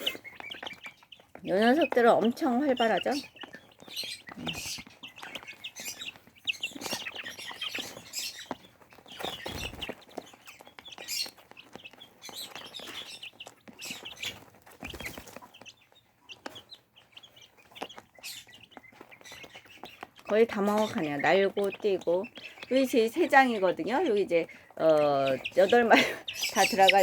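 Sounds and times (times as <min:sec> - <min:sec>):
chicks cheeping: 0:00.0 - 0:27.0
taps and rustles: 0:03.3 - 0:22.7.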